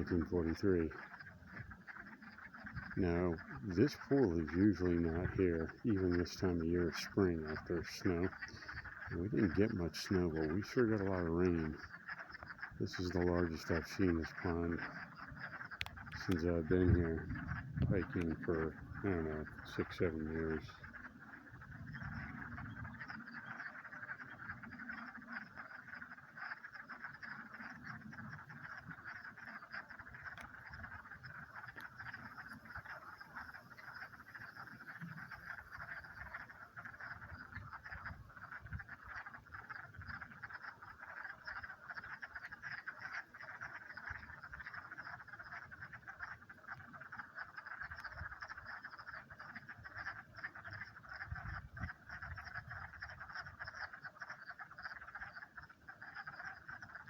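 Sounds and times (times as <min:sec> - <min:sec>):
frogs chorus calling: 0:00.0 - 0:57.0.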